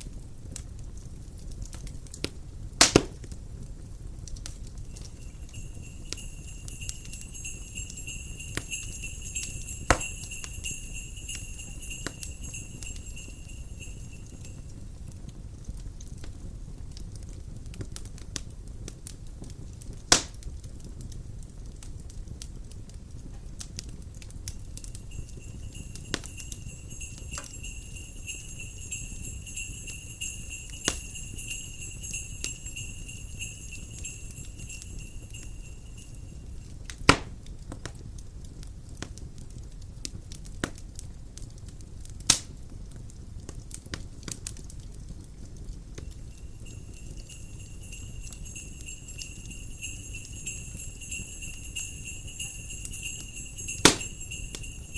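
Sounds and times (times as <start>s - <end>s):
low rumble of wind: 0.0s - 54.9s
wood fire crackling: 0.0s - 54.9s
sleigh bells jingling: 4.7s - 15.1s, 24.5s - 36.8s, 45.8s - 54.9s.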